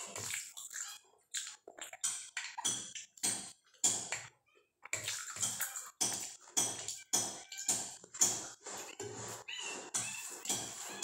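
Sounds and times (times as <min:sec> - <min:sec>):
person chewing food: 0:00.0 - 0:07.0.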